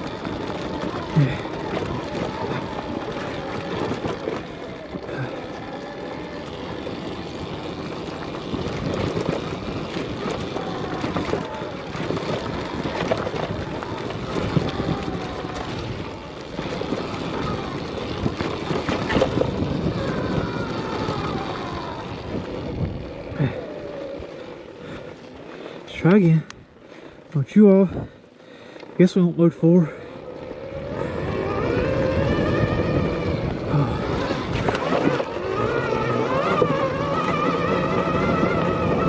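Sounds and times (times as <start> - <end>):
bike knocks and rattles: 0.0 - 23.6
wind on microphone: 0.0 - 25.1, 30.4 - 39.0
electric motor whine: 0.0 - 25.9, 30.0 - 39.0.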